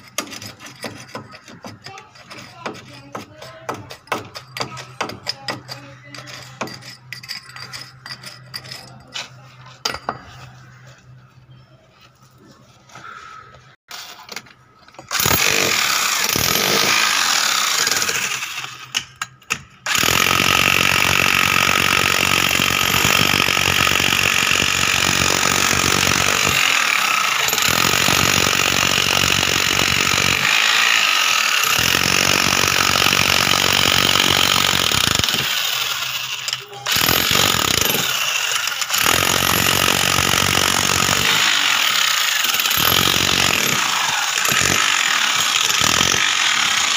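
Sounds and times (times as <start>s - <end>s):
handheld power tool running: 15.1s - 18.8s, 19.9s - 46.9s.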